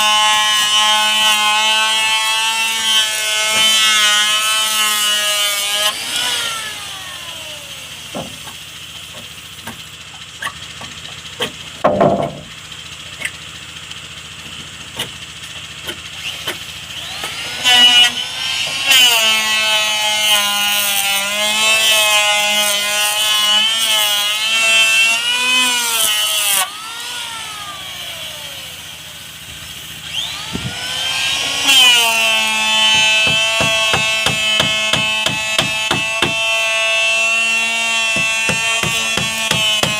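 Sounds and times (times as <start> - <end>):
power tool whining on wood: 0.0 - 39.9
taps and knocks: 10.8 - 12.5, 32.9 - 36.4, 38.2 - 39.9.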